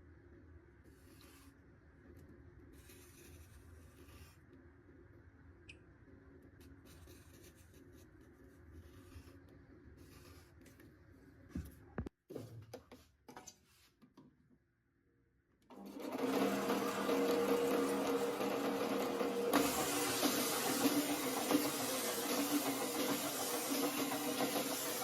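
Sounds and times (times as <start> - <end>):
electric power tool humming: 15.8 - 25.0.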